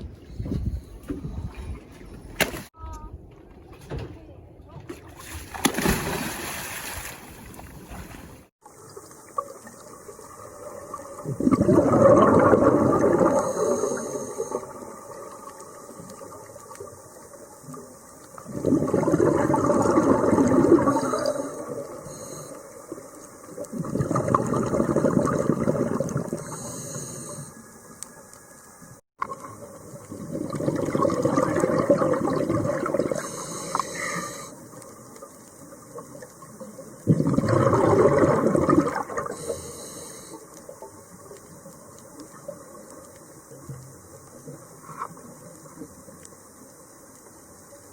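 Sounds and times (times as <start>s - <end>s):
diver exhaling bubbles: 9.6s - 15.2s, 18.4s - 22.4s, 23.6s - 27.6s, 29.3s - 34.5s, 37.0s - 40.3s.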